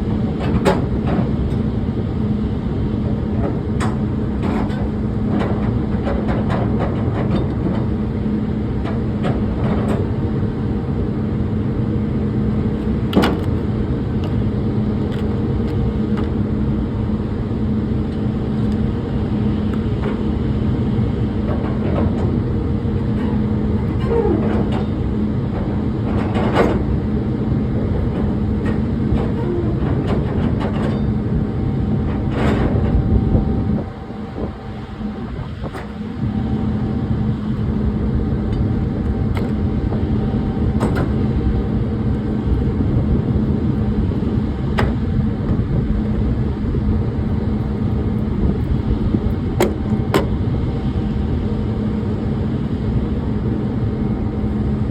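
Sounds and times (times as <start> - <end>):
engine humming: 0.0 - 54.9
knocks and clanks: 28.1 - 31.2, 40.8 - 41.2, 49.6 - 50.4.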